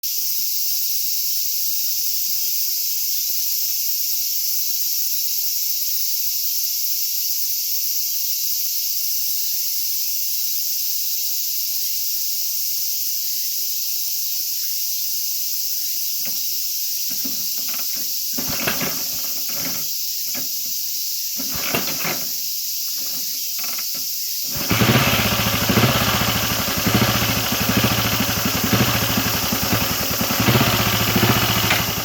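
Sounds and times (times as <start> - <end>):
cicadas chorus: 0.0 - 32.0.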